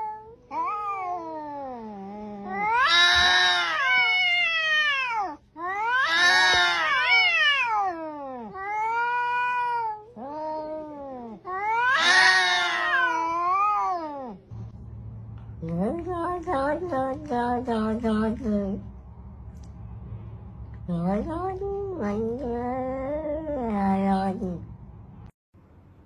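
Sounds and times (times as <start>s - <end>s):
cat yowling: 0.0s - 14.5s.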